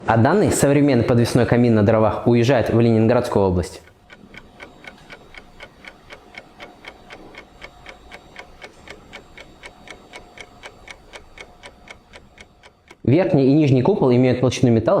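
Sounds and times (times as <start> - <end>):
steady ticking: 1.6 - 14.6
faint steady tone: 2.8 - 14.4.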